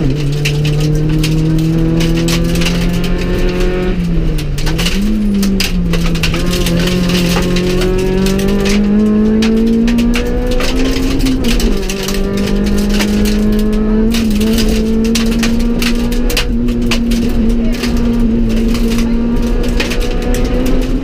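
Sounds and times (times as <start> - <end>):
rally car engine at high revs: 0.0 - 21.0
sharp clicks and rattles: 0.0 - 21.0.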